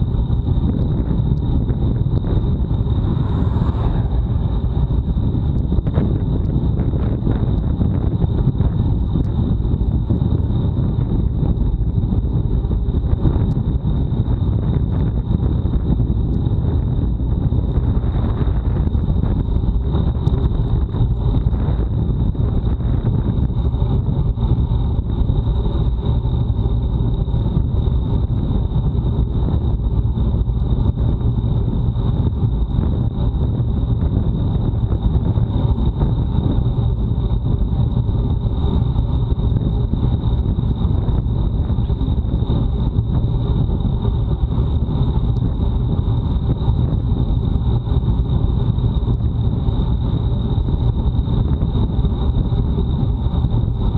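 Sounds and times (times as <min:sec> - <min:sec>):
thin high whine: 0:00.0 - 0:53.9
wind buffeting microphone: 0:00.0 - 0:53.9
tyres rumbling on road: 0:00.1 - 0:12.1.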